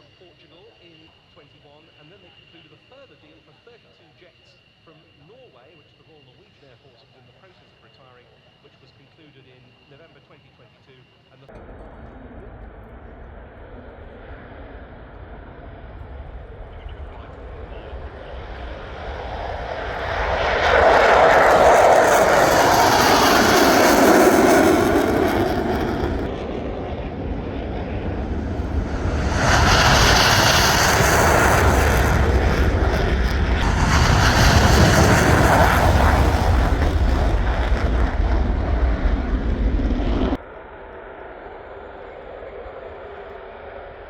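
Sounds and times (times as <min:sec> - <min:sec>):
jet fighters passing: 0:11.8 - 0:40.4.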